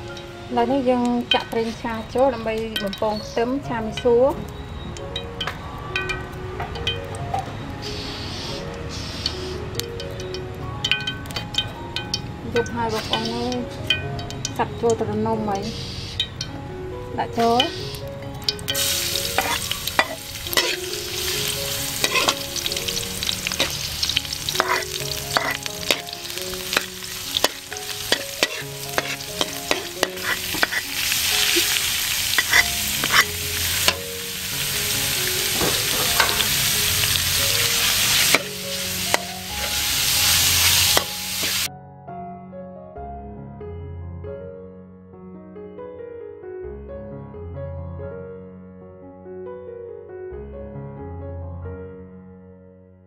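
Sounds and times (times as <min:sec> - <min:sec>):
food sizzling in a hot pan: 0:07.8 - 0:09.6, 0:11.6 - 0:13.5, 0:17.4 - 0:41.7
spatula scraping against pan: 0:19.3 - 0:22.4, 0:23.5 - 0:34.0.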